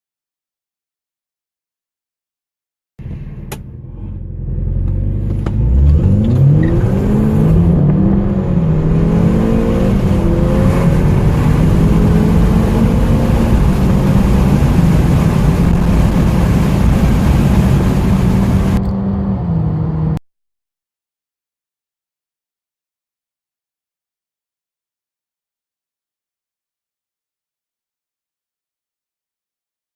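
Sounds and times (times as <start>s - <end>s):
car engine accelerating hard: 3.0s - 20.2s
road and wind noise: 3.0s - 20.2s.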